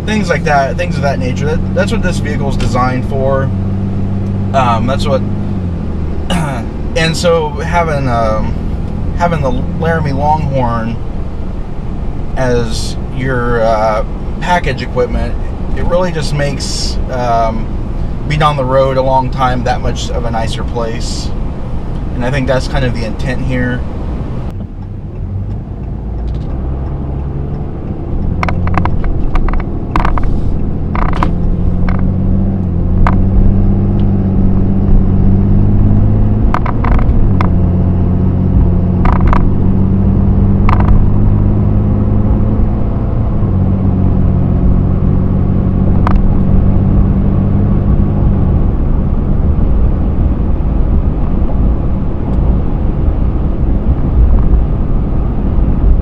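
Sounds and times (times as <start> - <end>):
pickup truck engine accelerating: 0.0 - 56.0
sharp clicks: 24.5 - 33.3, 36.5 - 37.6, 39.0 - 39.6, 40.6 - 41.0, 46.0 - 46.3.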